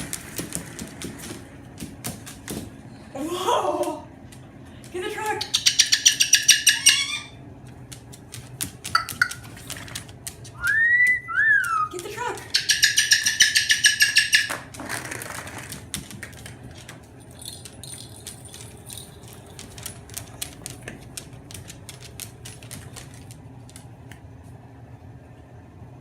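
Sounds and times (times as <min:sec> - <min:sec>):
cockatoo pulsed call: 0:05.5 - 0:07.4, 0:12.6 - 0:14.6.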